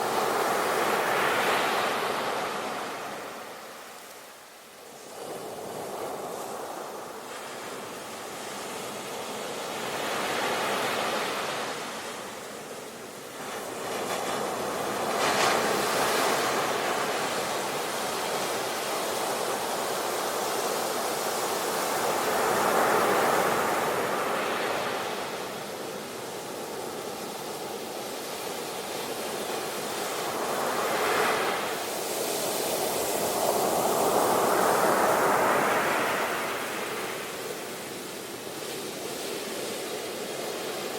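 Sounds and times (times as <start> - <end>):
sea waves breaking on shore: 5.0 - 40.9.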